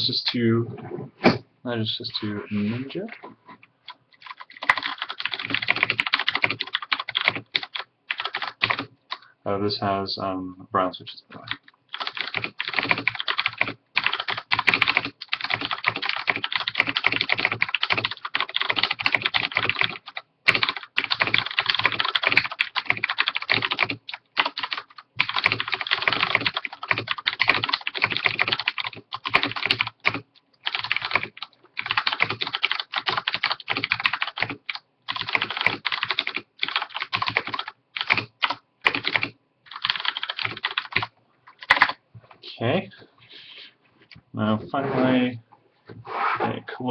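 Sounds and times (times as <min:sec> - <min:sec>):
mechanical keyboard typing: 0:03.9 - 0:08.9, 0:11.4 - 0:42.0.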